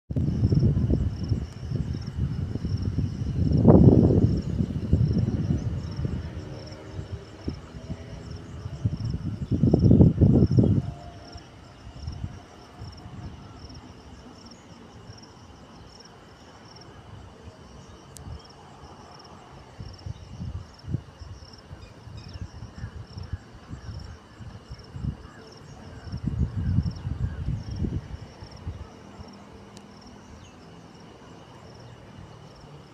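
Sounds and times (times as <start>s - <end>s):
low rumbles: 0.1s - 10.9s
insects chirping: 0.1s - 32.9s.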